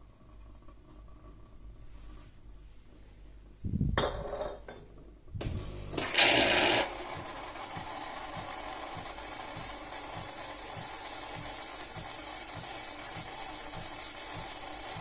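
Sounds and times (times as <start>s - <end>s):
coffee machine hiss: 5.4s - 15.0s
coffee machine running hum: 5.4s - 15.0s.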